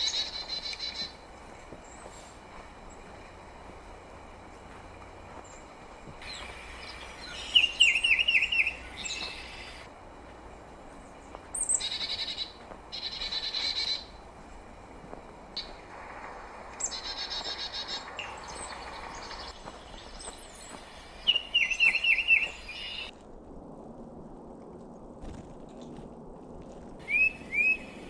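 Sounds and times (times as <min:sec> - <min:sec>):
chickadees calling: 0:00.0 - 0:09.9, 0:10.9 - 0:14.4, 0:15.5 - 0:23.1, 0:27.0 - 0:28.0.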